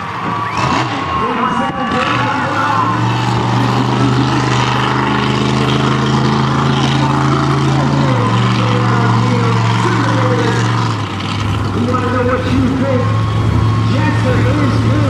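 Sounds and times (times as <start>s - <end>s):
monster truck engine drone: 0.0s - 15.0s.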